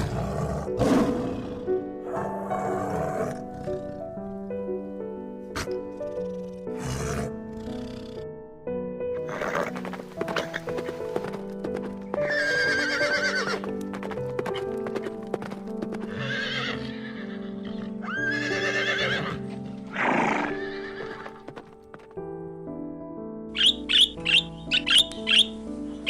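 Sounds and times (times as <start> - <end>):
soft background music: 0.0 - 26.0
horse whinnying: 9.2 - 10.7, 12.2 - 13.7, 16.0 - 21.4
hoof clops: 9.5 - 16.3, 21.0 - 22.2.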